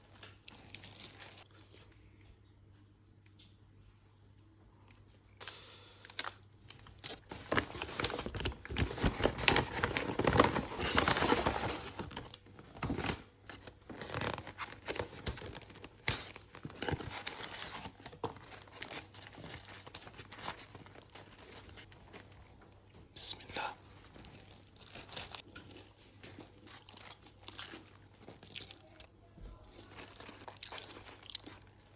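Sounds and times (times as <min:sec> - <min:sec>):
paper wrapper crinkling and tearing: 0:05.4 - 0:22.6, 0:29.7 - 0:31.9.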